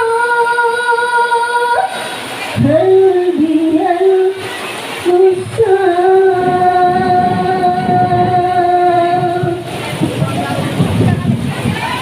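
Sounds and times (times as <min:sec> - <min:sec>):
person singing: 0:00.0 - 0:02.0, 0:02.6 - 0:09.8.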